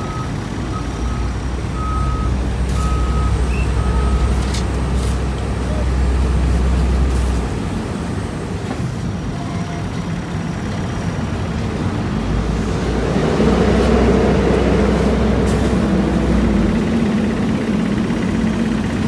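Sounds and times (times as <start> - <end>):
heavy vehicle engines rumbling: 0.0 - 19.0.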